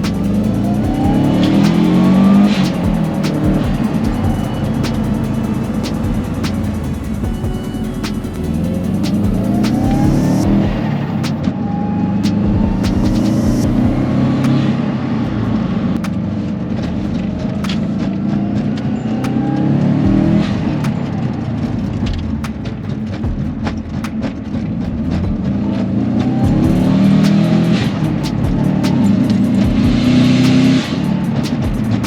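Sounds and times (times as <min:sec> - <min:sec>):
sharp clicks: 0:00.0 - 0:11.5
car engine accelerating: 0:00.0 - 0:23.2, 0:23.8 - 0:32.0.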